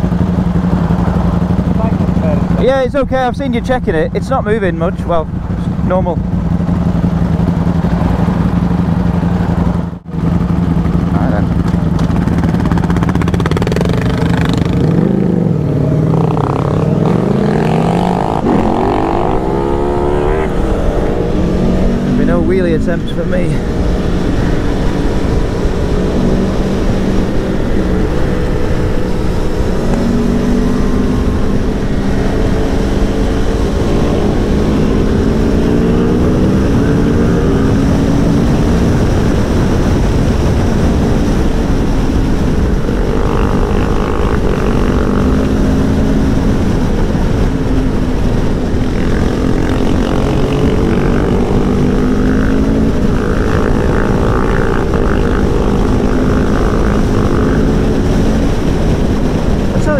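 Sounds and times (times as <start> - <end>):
motorcycle engine accelerating: 0.0 - 59.9
wind rush on microphone: 10.8 - 59.9.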